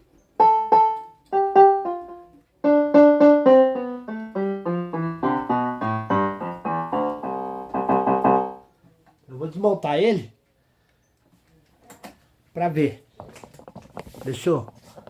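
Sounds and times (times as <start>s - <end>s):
electronic keyboard piano notes: 0.4s - 8.7s.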